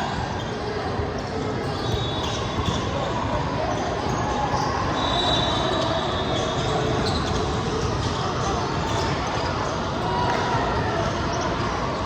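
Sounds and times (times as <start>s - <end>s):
crowd noise: 0.0s - 12.0s
shoe squeaks: 1.2s - 8.2s.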